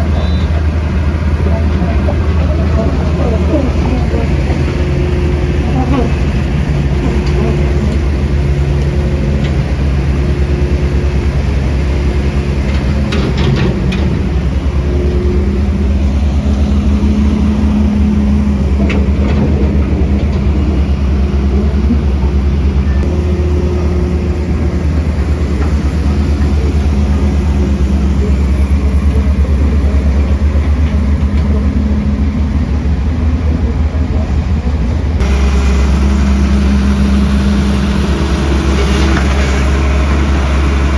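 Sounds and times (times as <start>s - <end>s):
diesel earthmoving machines running: 0.0s - 40.9s.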